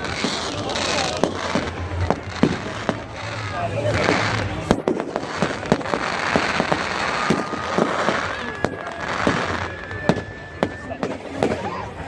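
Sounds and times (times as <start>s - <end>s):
fireworks bangs and crackles: 0.0s - 12.0s
thin steady whistle: 7.2s - 11.4s.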